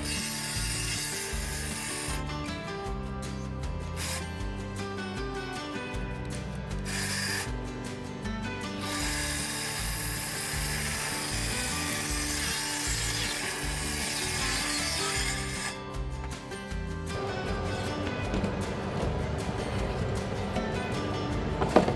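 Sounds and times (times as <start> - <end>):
circular saw cutting plywood: 0.0 - 2.2, 6.9 - 7.5, 8.8 - 15.8
background music: 0.0 - 21.9.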